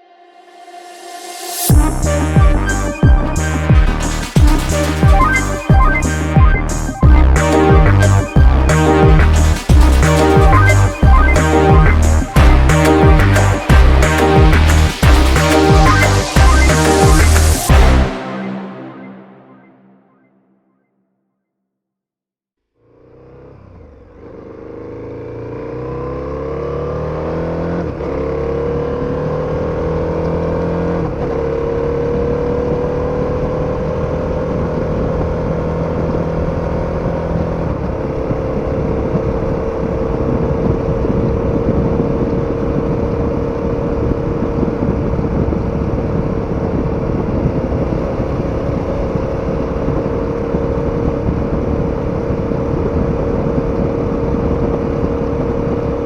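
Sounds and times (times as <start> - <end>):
motorcycle engine accelerating: 22.8 - 56.0
wind and road rush: 24.2 - 56.0.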